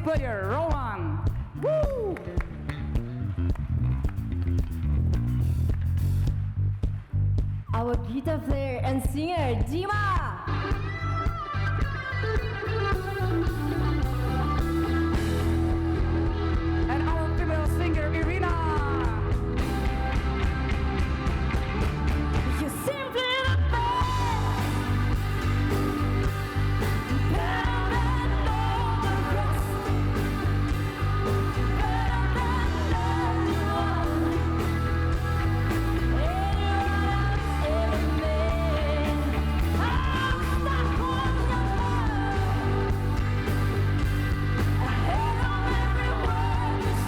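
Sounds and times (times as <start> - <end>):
bass guitar: 0.0 - 47.0
drums: 0.0 - 47.0
live rock band playing: 10.5 - 47.0
person singing: 22.4 - 43.6, 44.8 - 47.0.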